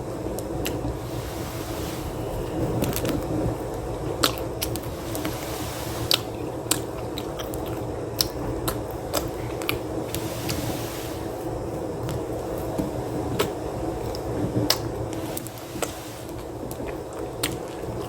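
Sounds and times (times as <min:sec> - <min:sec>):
steady low hum: 0:00.0 - 0:18.0
chewing food: 0:06.1 - 0:09.8, 0:16.7 - 0:18.0.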